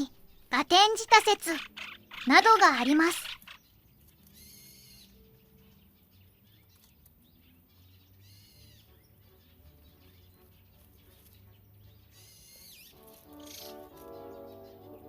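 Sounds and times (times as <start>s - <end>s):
faint bird chirps and calls: 0.0s - 3.8s.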